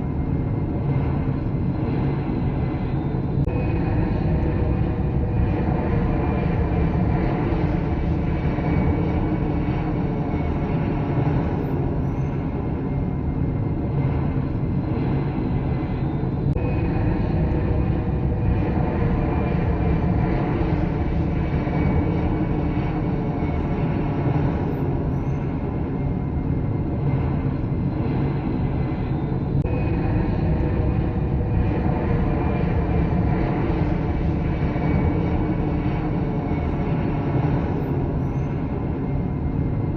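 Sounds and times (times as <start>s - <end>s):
jet engine rumble and whine: 0.0s - 39.9s.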